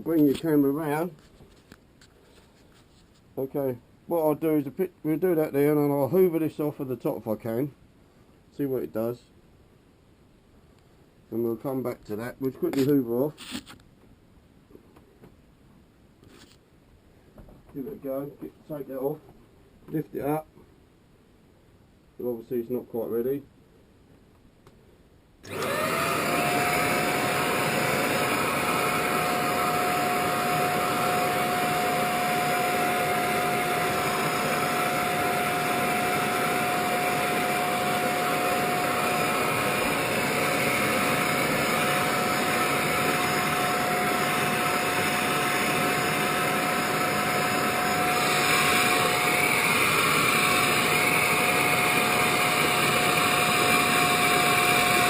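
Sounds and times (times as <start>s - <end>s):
vacuum cleaner motor whine: 25.4s - 55.0s.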